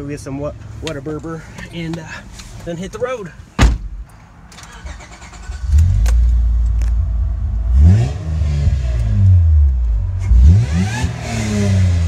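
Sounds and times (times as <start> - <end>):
car engine revving: 4.7 - 12.0.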